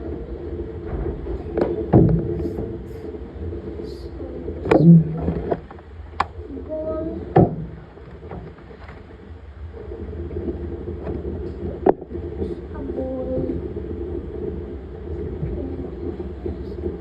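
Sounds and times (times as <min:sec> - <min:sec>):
laundry machine humming and churning: 0:00.0 - 0:17.0
sharp knocks: 0:07.3 - 0:09.0.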